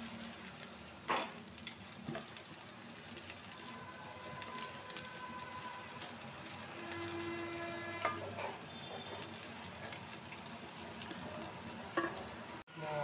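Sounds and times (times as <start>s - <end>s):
vegetables sizzling in a wok: 0.0s - 13.0s
horn-like tone: 3.6s - 6.0s, 6.7s - 9.4s
spatula scraping a pan: 6.0s - 10.0s.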